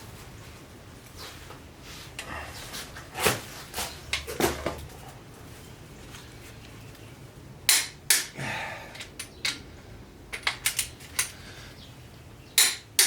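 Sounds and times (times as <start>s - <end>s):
tools clinking on metal: 10.3s - 11.4s.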